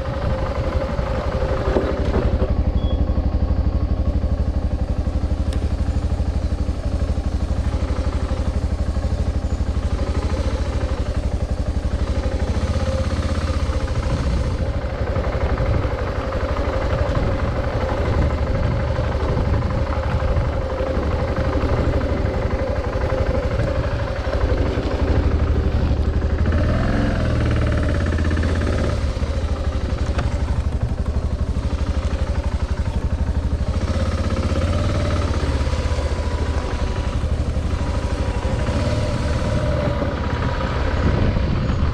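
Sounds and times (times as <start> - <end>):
wind rumble on microphone: 0.0 - 3.0, 12.5 - 31.6, 37.0 - 41.9
motorcycle engine running: 0.0 - 41.9.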